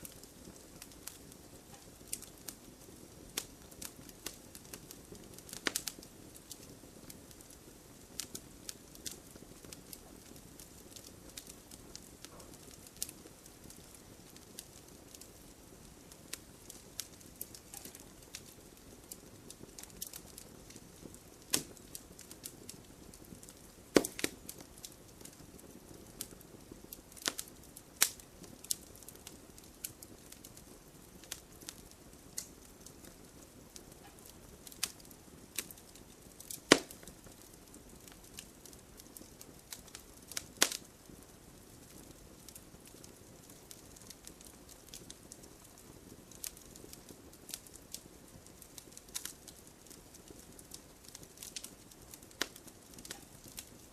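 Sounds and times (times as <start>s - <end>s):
campfire hissing: 0.0s - 53.9s
wood popping and cracking: 23.4s - 24.8s, 36.4s - 37.5s, 39.7s - 40.8s.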